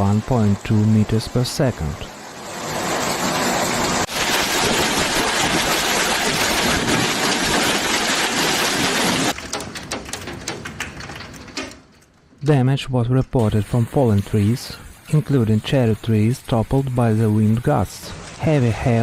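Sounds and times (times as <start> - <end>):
heavy rain hammering: 0.0 - 11.6.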